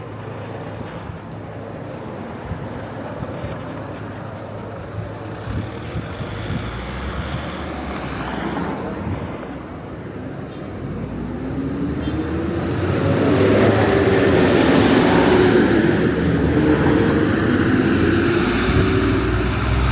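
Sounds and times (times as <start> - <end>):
street traffic: 0.0 - 19.9
vehicle engine approaching: 10.8 - 19.9.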